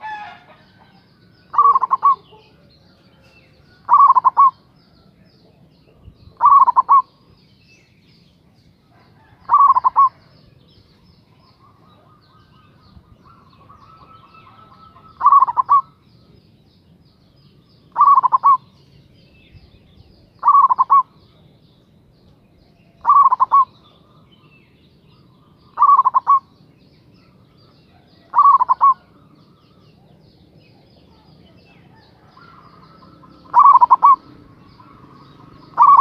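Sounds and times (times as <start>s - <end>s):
dove cooing: 0.0s - 4.8s, 6.3s - 7.2s, 8.9s - 10.3s, 11.3s - 16.0s, 17.9s - 18.7s, 20.4s - 21.4s, 22.9s - 24.5s, 25.7s - 26.5s, 27.2s - 36.0s.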